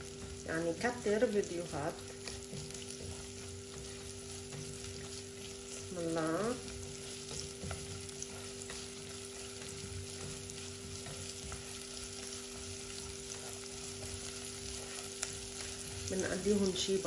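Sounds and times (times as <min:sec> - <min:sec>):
onion sizzling in oil: 0:00.0 - 0:17.0
spatula stirring in pot: 0:00.0 - 0:17.0
steady low hum: 0:00.0 - 0:17.0.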